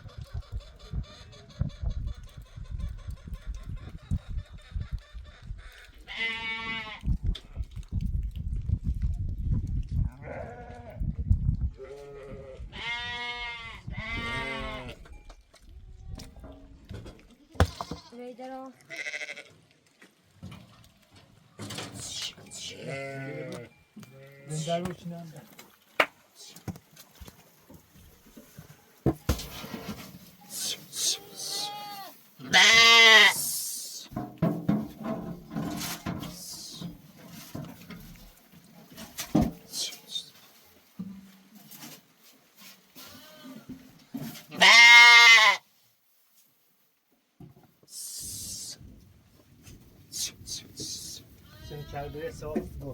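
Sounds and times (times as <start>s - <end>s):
sheep or goats bleating: 6.1s - 7.1s, 10.2s - 11.0s, 11.8s - 15.0s, 18.8s - 19.6s, 22.1s - 24.8s, 30.4s - 33.6s, 43.0s - 43.7s, 44.5s - 45.6s, 51.0s - 52.3s
knocks and light clatter: 34.1s - 36.3s, 36.9s - 39.6s.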